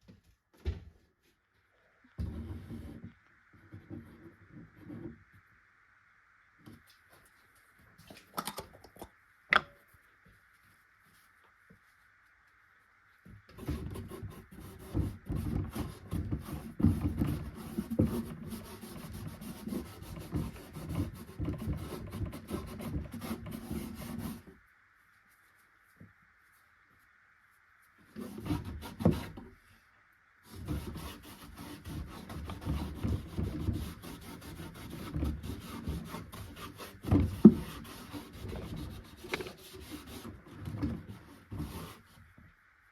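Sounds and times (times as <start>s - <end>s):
scraping on wood: 13.5s - 24.6s, 30.5s - 42.4s.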